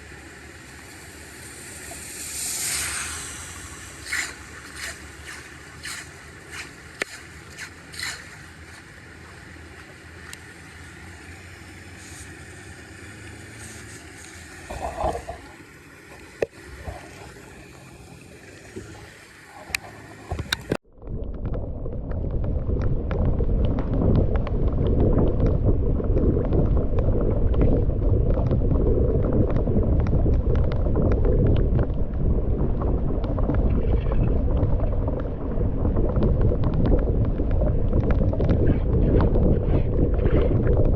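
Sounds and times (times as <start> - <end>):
low rushing noise: 0.0 - 40.9.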